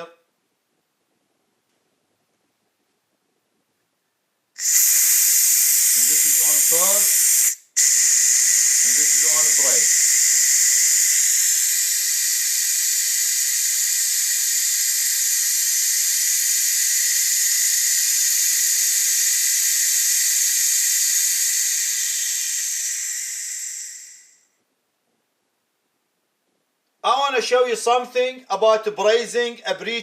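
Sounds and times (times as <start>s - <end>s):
gas hissing from hose: 4.6s - 24.6s.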